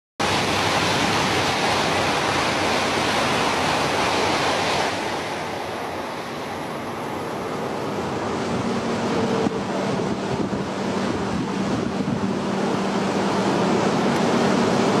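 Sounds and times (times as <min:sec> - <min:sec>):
trains passing at speed: 0:00.2 - 0:15.0.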